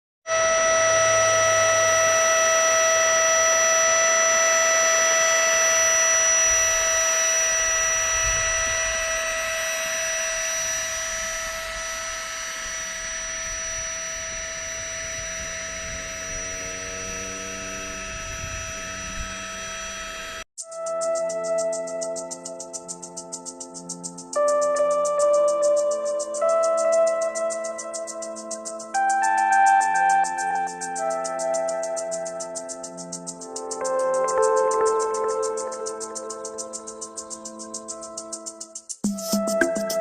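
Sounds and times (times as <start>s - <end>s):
low sustained notes: 0.3s - 20.5s
ringing drone of high tones: 0.3s - 40.0s.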